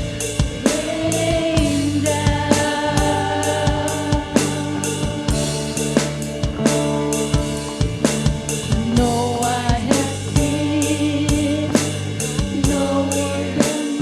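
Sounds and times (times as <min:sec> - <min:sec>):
drum kit beat: 0:00.0 - 0:14.0
live band playing slow song: 0:00.0 - 0:14.0
person singing: 0:00.6 - 0:14.0.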